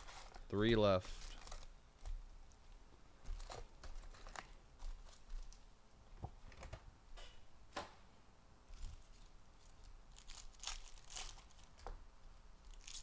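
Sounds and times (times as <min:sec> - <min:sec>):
card wrappers crinkling: 0:00.0 - 0:02.2, 0:03.3 - 0:05.6, 0:08.8 - 0:11.9, 0:12.7 - 0:13.0.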